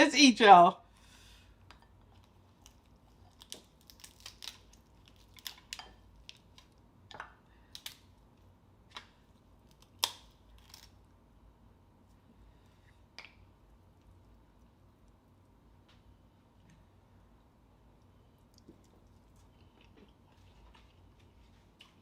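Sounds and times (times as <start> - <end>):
chewing: 18.4 - 22.0.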